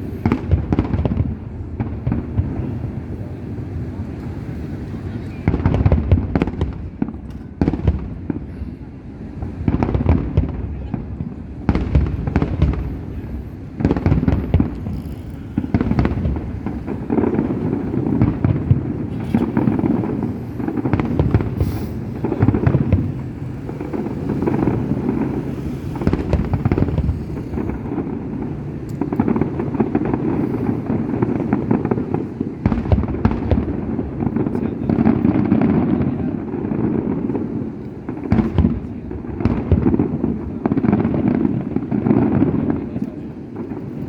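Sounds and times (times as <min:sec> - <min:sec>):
fireworks bangs and pops: 0:00.0 - 0:44.0
booming shells rumble: 0:09.3 - 0:42.8.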